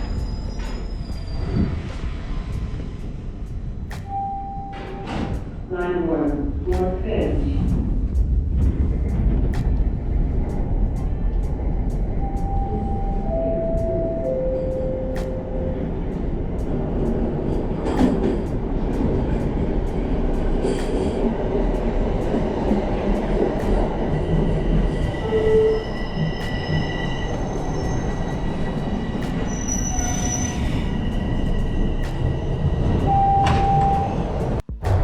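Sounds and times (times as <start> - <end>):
high-pitched wheel squeal: 0.0 - 2.0, 25.0 - 33.1
train clicks: 0.0 - 12.7, 13.3 - 34.7
subway train rumbling on rails: 0.0 - 35.0.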